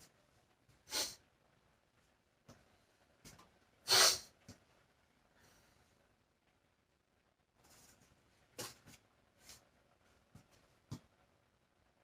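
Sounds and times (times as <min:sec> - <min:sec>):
sharp breath through nose: 0:00.9 - 0:01.2, 0:03.9 - 0:04.3.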